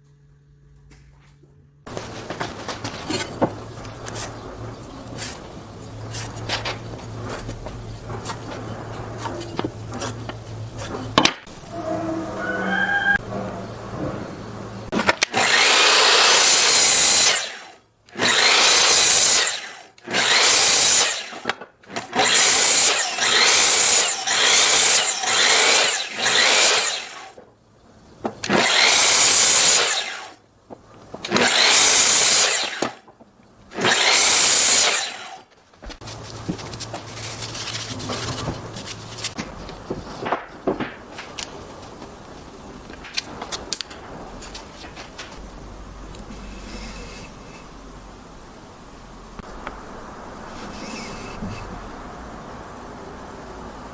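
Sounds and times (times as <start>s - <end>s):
low hum: 0.0s - 15.6s
power tool cutting wood: 14.6s - 27.4s, 28.4s - 30.4s, 31.2s - 33.1s, 33.7s - 36.0s.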